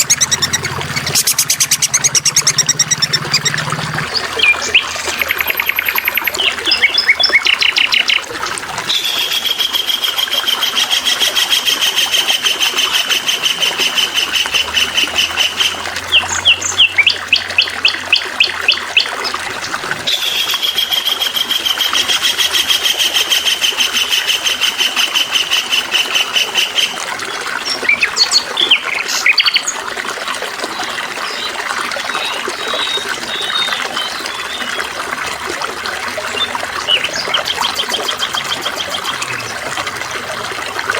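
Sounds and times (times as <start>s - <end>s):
songbird trilling and chirping: 0.0s - 8.2s, 16.1s - 19.4s, 27.7s - 29.7s
running water trickling: 0.0s - 40.9s.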